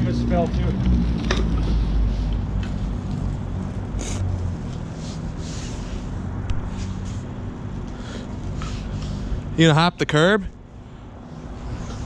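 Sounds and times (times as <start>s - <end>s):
scooters rolling over pavement: 0.0s - 10.2s
hissy swells: 4.8s - 7.4s, 11.2s - 12.0s.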